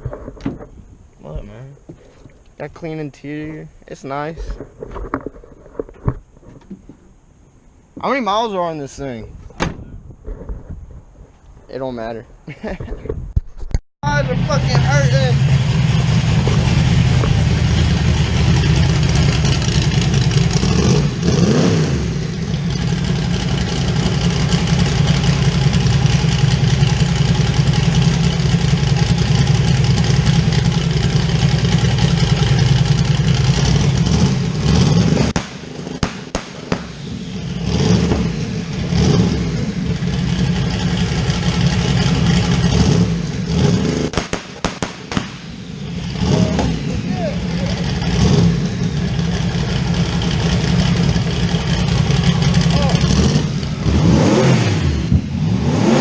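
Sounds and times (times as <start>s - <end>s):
car engine idling and revving: 14.0s - 56.0s.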